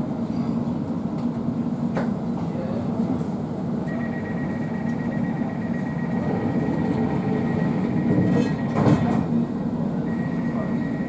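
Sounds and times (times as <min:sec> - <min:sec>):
train carriage rumbling: 0:00.0 - 0:11.0.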